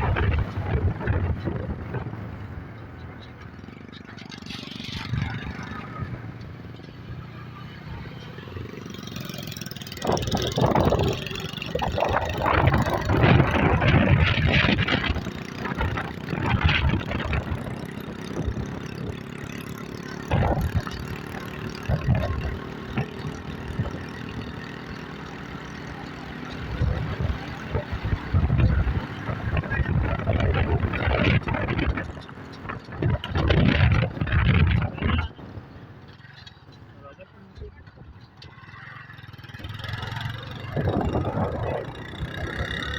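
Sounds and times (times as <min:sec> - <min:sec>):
wind noise on microphone: 0:00.0 - 0:03.1, 0:09.6 - 0:24.8, 0:26.4 - 0:36.1, 0:39.5 - 0:42.9
motorcycle engine running: 0:00.0 - 0:42.9.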